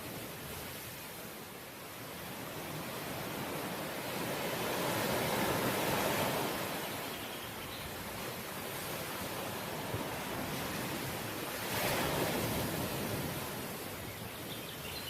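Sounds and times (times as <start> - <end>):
ocean waves breaking on shore: 0.0 - 15.0.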